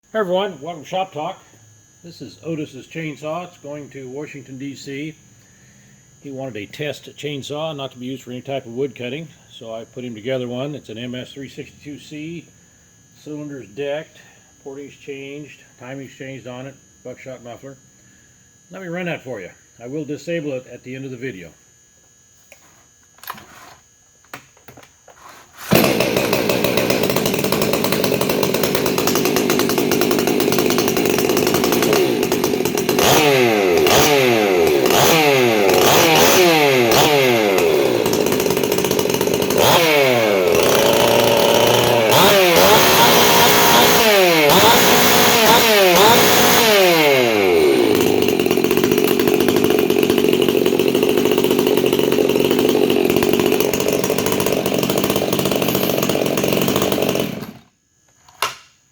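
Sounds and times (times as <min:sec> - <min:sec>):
chainsaw revving: 0:25.6 - 0:57.7.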